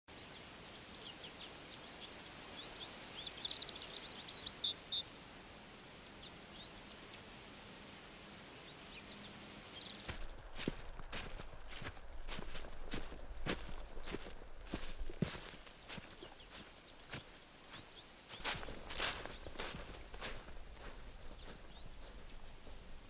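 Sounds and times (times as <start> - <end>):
forest ambience hiss: 0.1 - 23.0
woodland birds chirping: 0.2 - 5.2, 6.2 - 7.4, 8.6 - 23.0
footsteps on leaf litter: 10.1 - 23.0.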